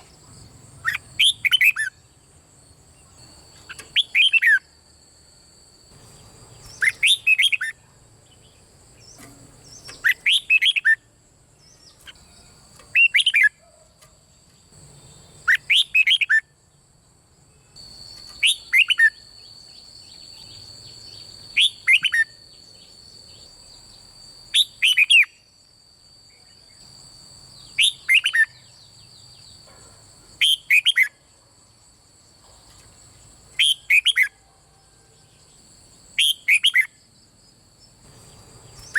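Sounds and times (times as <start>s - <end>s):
bird singing whistled notes: 0.8s - 2.2s, 2.9s - 4.8s, 5.9s - 13.8s, 15.0s - 16.6s, 17.5s - 25.5s, 27.6s - 29.6s, 30.4s - 31.2s, 33.5s - 34.4s, 36.1s - 37.1s, 38.2s - 38.9s.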